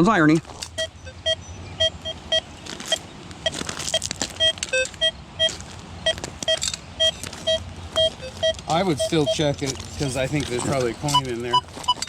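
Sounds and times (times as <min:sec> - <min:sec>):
metal detector beeps: 0:00.7 - 0:12.0
scraping noises: 0:02.8 - 0:12.0.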